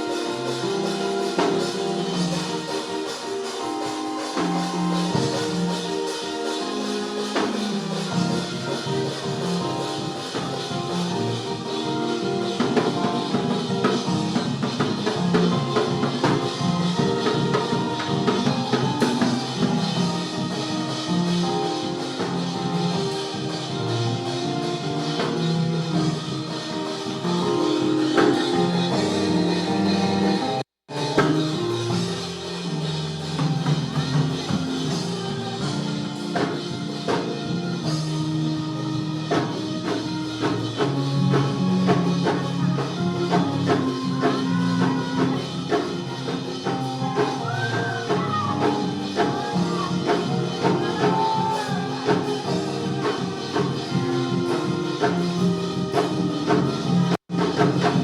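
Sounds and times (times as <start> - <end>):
band music with drum kit: 0.0 - 58.0.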